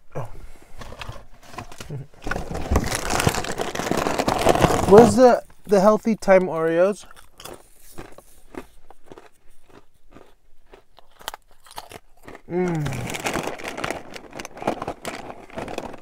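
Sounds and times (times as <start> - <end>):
crackers crunching: 0.8 - 16.0
person humming: 12.5 - 13.2.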